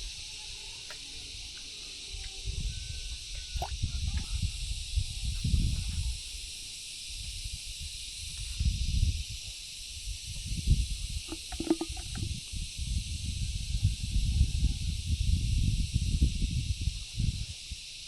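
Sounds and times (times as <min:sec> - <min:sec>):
wind on microphone rumbles: 0:02.2 - 0:17.7.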